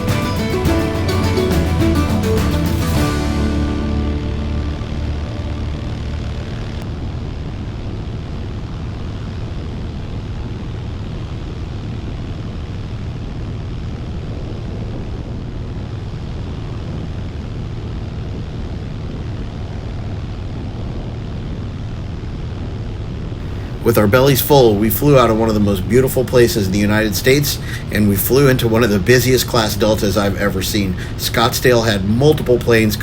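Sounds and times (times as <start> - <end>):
aircraft engine and propeller droning: 0.0 - 9.8, 23.4 - 33.0.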